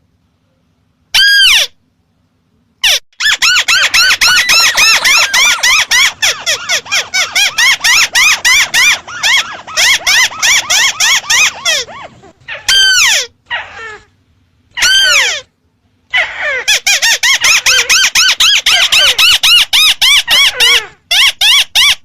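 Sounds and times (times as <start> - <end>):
crake calling squeaky notes: 2.8 - 11.9.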